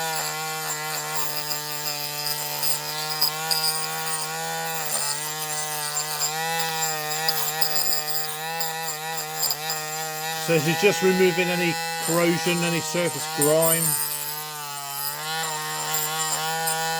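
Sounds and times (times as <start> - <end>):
rotary tool whining: 0.0 - 10.5.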